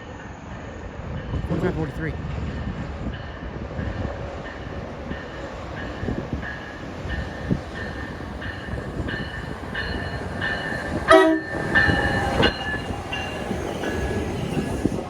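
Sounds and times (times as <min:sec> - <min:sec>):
train rumbling past: 0:00.0 - 0:15.0
train bell ringing: 0:03.0 - 0:15.0
train horn note: 0:11.1 - 0:12.0.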